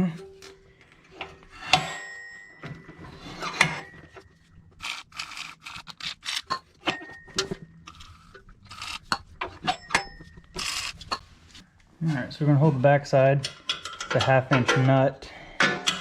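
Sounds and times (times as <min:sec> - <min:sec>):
metal tools clinking on steel: 0:00.1 - 0:11.2, 0:13.4 - 0:16.0
scraping rasping bursts: 0:04.8 - 0:06.6.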